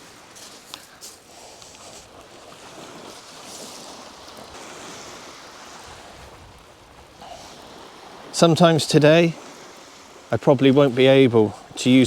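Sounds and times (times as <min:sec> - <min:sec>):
surf washing on beach: 0:00.0 - 0:12.0
wind on microphone: 0:01.8 - 0:08.3.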